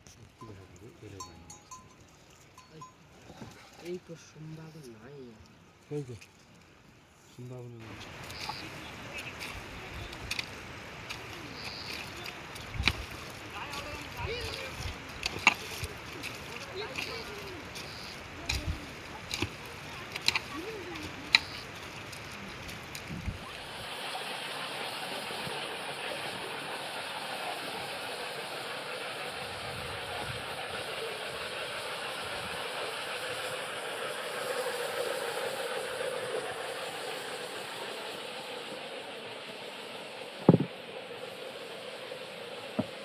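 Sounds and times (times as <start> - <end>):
heavy rain hissing: 7.7 - 43.0
sharp knock: 40.5 - 40.7.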